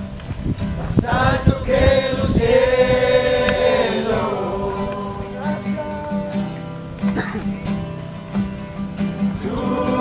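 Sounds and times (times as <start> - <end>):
group of voices singing: 0.8 - 6.5, 9.3 - 10.0.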